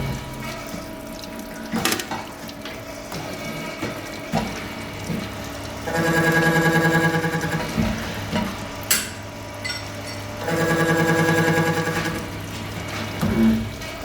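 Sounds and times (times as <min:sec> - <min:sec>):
motor hum with steady tones: 0:00.0 - 0:14.0
milling machine running: 0:04.7 - 0:08.8, 0:10.2 - 0:14.0.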